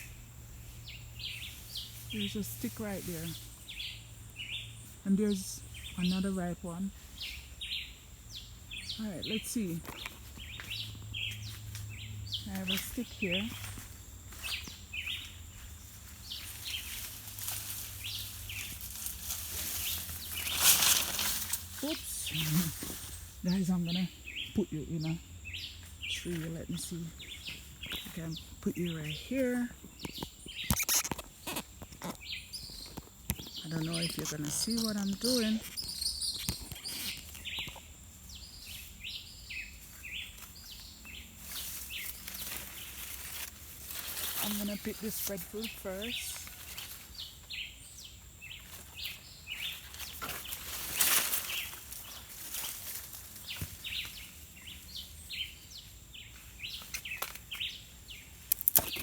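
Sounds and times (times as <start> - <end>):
bird chirping: 0.0 - 17.1, 21.3 - 52.7
rustling hiss: 0.0 - 24.4
rustling: 9.4 - 24.0, 39.7 - 47.5, 48.6 - 57.7.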